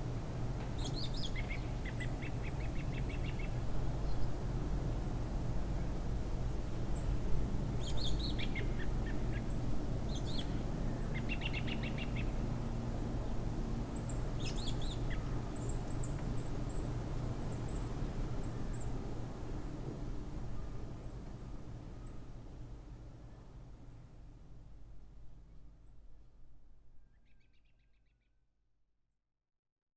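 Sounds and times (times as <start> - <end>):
songbirds chirping: 0.6 - 4.4, 6.8 - 12.5, 13.2 - 19.0.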